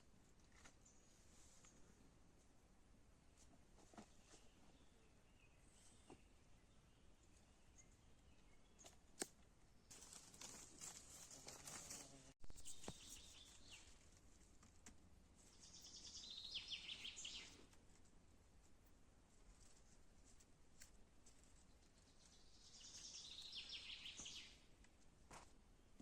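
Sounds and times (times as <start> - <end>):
birds chirping: 15.5 - 17.7
soft rustling: 19.3 - 22.4.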